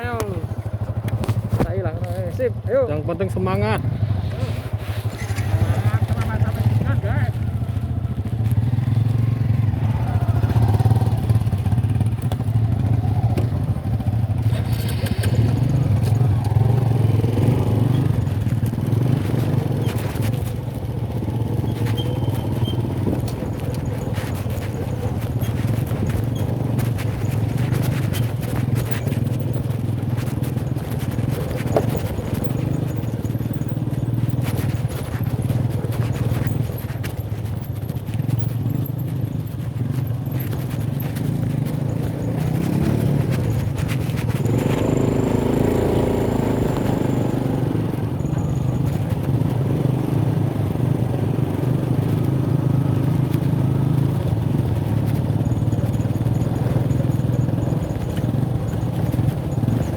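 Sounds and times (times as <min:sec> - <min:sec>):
motorcycle engine running: 0:00.0 - 0:59.9
knocks and rattles: 0:10.5 - 0:50.8.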